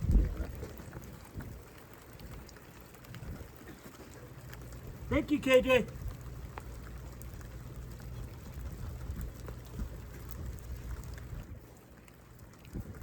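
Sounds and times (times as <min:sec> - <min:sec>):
low rumble: 0:00.0 - 0:00.6
rain falling: 0:00.0 - 0:13.0.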